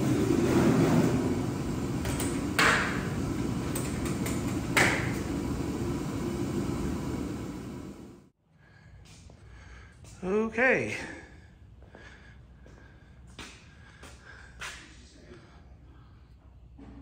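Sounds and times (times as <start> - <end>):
steady low rumble: 0.0 - 8.3.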